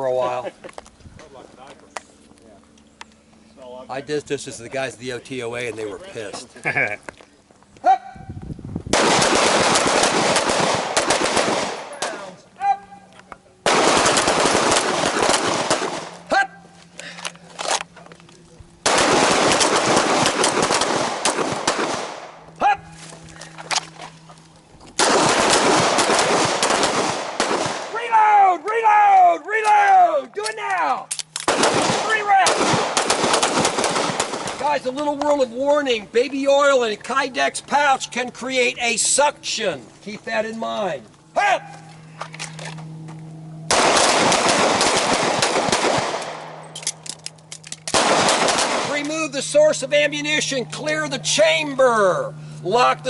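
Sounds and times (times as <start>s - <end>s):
handgun gunfire with echoes: 9.0s - 12.3s, 13.7s - 16.2s, 18.8s - 22.3s, 25.0s - 27.9s, 31.4s - 34.6s, 43.7s - 47.0s, 47.9s - 49.1s
handgun shots: 18.9s - 22.3s.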